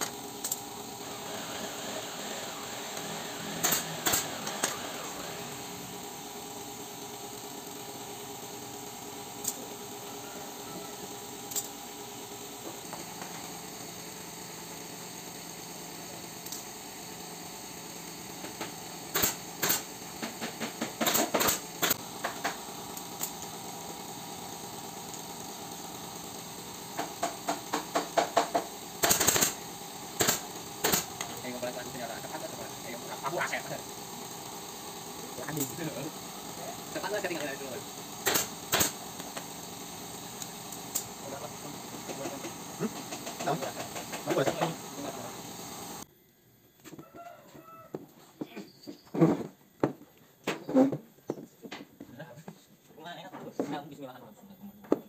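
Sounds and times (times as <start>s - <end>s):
pneumatic staple gun firing: 0.0s - 5.5s, 16.4s - 16.8s, 18.0s - 23.5s, 25.1s - 31.5s, 37.0s - 39.7s
steady machine hum: 0.0s - 46.1s.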